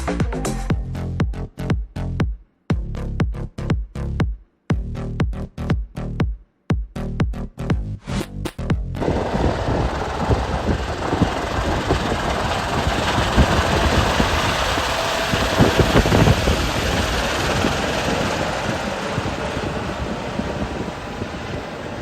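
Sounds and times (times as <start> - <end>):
electronic music: 0.0 - 2.8
vehicle rumble: 8.0 - 22.0
wind noise on microphone: 8.6 - 22.0.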